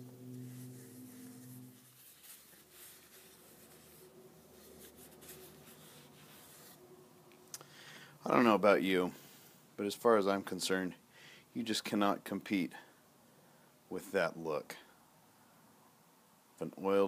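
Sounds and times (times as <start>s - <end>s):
cloth rubbing on wood: 0.0s - 6.8s
low steady hum: 0.0s - 10.1s.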